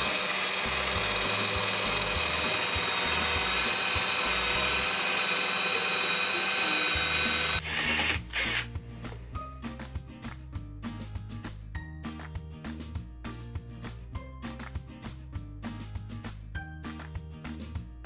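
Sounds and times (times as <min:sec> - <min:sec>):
drill press boring into wood: 0:00.0 - 0:08.7.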